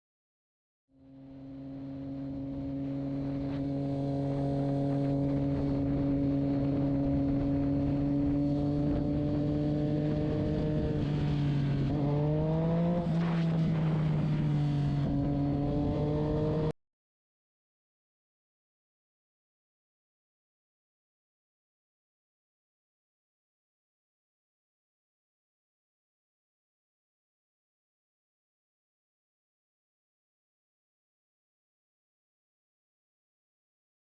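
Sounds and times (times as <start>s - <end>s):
road noise: 1.0s - 16.7s
vehicle engine droning: 1.0s - 16.8s.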